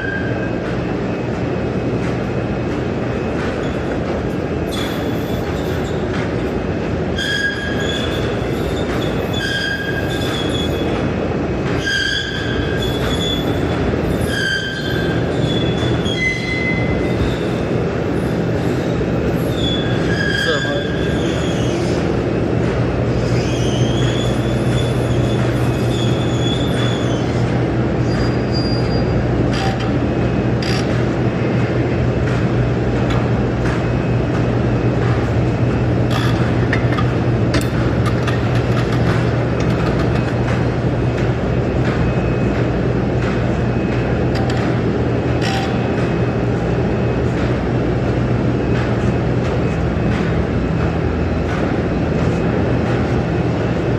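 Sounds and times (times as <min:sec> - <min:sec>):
sharp clicks and knocks: 0:32.2 - 0:35.4, 0:36.1 - 0:46.2, 0:48.7 - 0:53.3.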